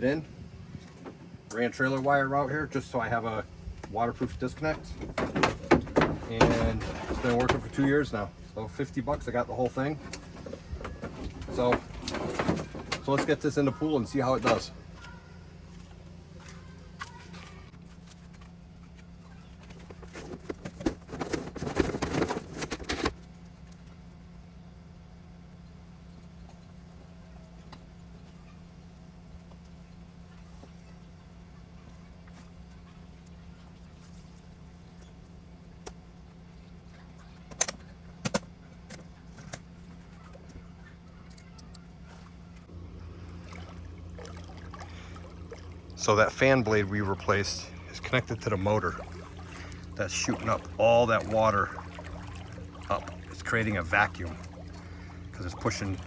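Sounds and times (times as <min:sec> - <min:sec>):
steady low hum: 0:00.0 - 0:56.0
water splashing and gurgling: 0:42.8 - 0:56.0.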